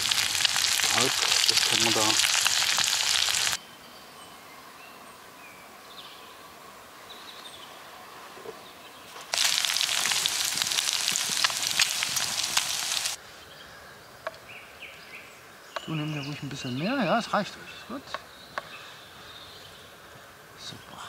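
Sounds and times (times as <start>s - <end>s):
food sizzling in a pan: 0.0s - 3.6s, 9.2s - 13.2s.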